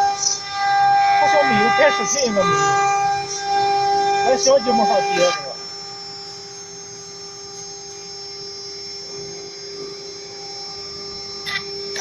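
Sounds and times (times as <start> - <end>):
router machine humming and whining: 0.0 - 12.0.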